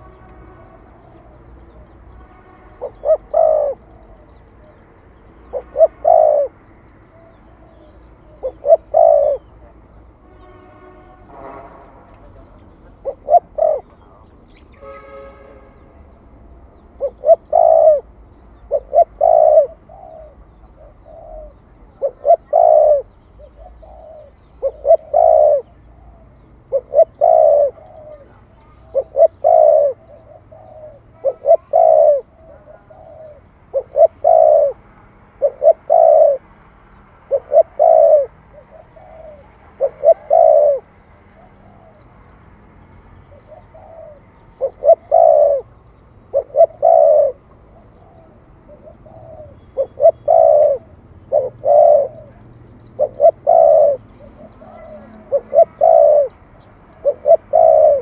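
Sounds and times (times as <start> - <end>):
dove cooing: 2.7 - 10.2, 12.2 - 14.8, 16.2 - 34.8, 35.4 - 36.5, 37.2 - 42.4, 43.2 - 58.0.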